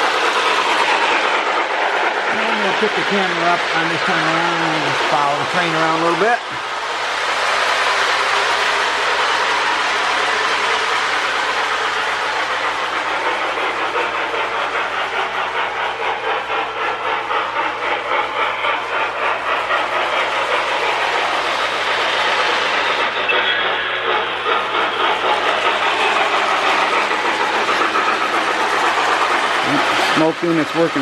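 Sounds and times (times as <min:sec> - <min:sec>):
model train motor running: 0:00.0 - 0:31.0
rhythmic steam chuff: 0:00.0 - 0:31.0.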